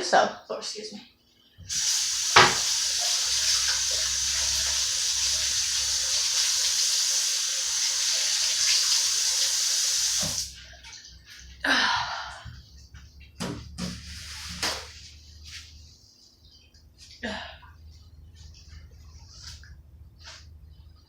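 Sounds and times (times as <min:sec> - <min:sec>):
water running from tap into sink: 0:01.7 - 0:10.6.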